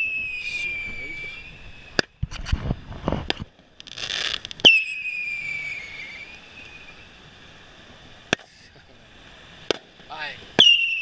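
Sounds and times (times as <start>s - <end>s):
high falling firework whistle: 0.0s - 2.2s, 4.0s - 7.2s, 10.6s - 11.0s
firework hissing rush: 0.0s - 2.4s, 3.9s - 11.0s
fireworks cracking: 0.0s - 7.0s, 9.6s - 11.0s.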